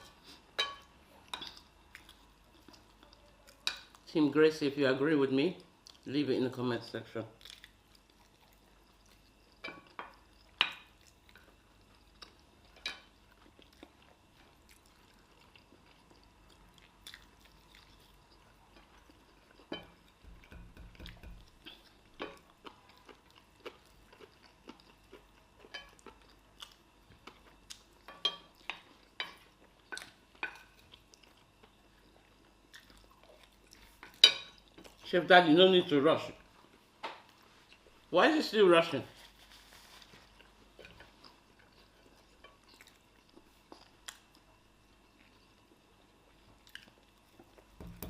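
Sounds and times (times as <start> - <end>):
chewing: 0.1 - 4.1, 7.4 - 35.1, 39.4 - 47.8
cutlery clinking on dishes: 28.1 - 28.5.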